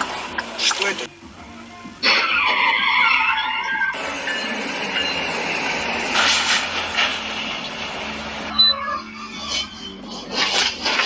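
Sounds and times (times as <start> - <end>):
vehicle in motion rushing: 3.8 - 8.5.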